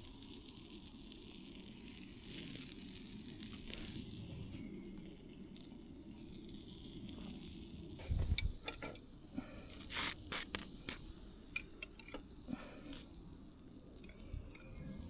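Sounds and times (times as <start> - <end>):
campfire sizzling and crackling: 0.0 - 15.0
sharp clicks and knocks: 8.0 - 9.0, 10.3 - 12.3.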